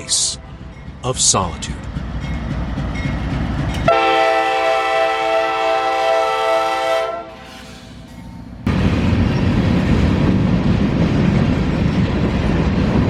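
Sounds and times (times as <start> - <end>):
train rumbling: 0.0 - 13.0
locomotive horn blast: 3.8 - 7.9.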